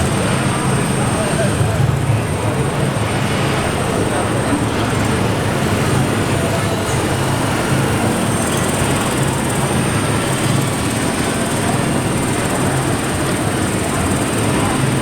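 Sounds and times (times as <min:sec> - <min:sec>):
hall background noise: 0:00.0 - 0:15.0.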